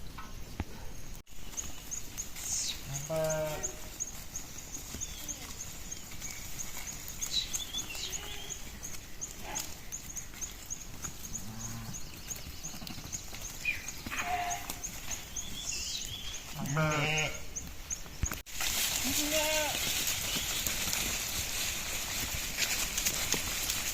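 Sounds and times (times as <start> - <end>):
sheep bleating: 2.9 - 3.8, 14.1 - 14.8, 16.6 - 17.5, 19.0 - 19.8.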